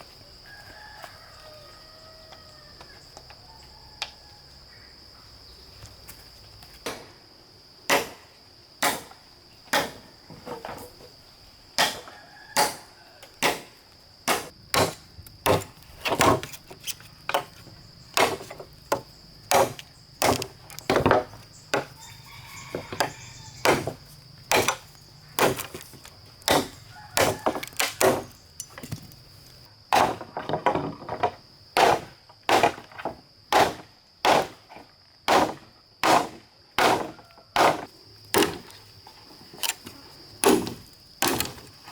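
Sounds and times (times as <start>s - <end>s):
high insect drone: 0.0s - 30.0s
chopping wood: 6.8s - 7.2s, 7.9s - 10.1s, 11.8s - 16.5s, 18.2s - 22.0s, 22.9s - 29.2s, 29.9s - 38.7s, 40.4s - 41.7s.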